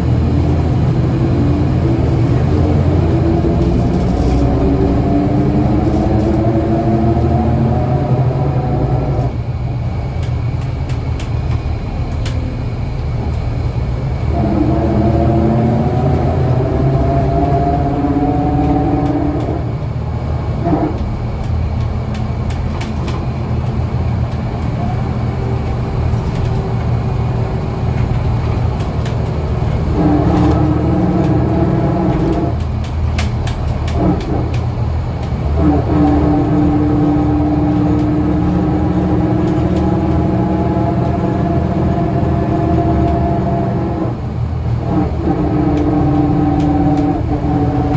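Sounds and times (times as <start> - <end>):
bus diesel engine rumbling: 0.0 - 47.9
whining tone rising in pitch: 14.0 - 20.0
short rattles and clicks: 20.6 - 40.3.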